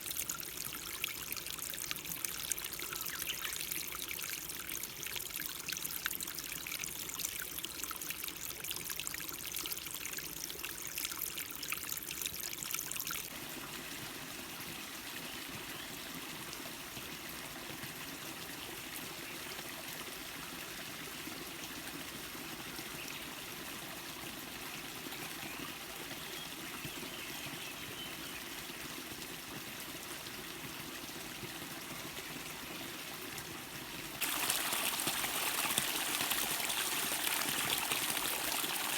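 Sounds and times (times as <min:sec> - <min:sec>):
stream flowing over rocks: 0:28.5 - 0:38.9.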